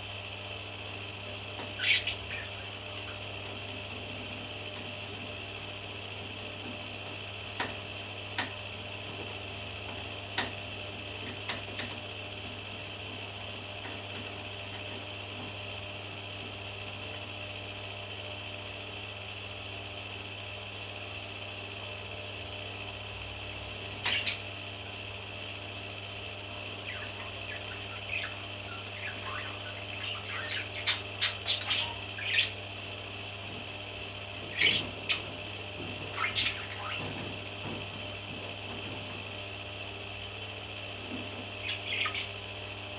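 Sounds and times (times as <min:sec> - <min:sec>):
steady low hum: 0:00.0 - 0:42.9
parrot chicks chirping: 0:01.6 - 0:03.4, 0:23.9 - 0:24.5, 0:26.8 - 0:32.7, 0:34.4 - 0:37.4, 0:41.5 - 0:42.4.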